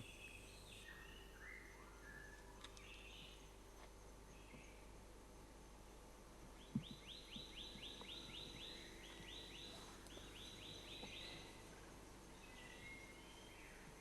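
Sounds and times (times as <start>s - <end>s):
soft low thump: 6.6s - 7.5s.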